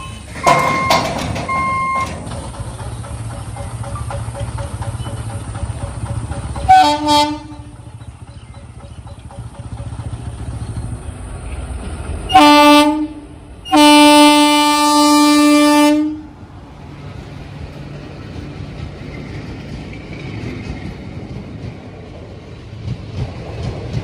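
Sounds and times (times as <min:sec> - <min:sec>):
train horn blasts: 0:06.6 - 0:08.0, 0:12.3 - 0:16.4.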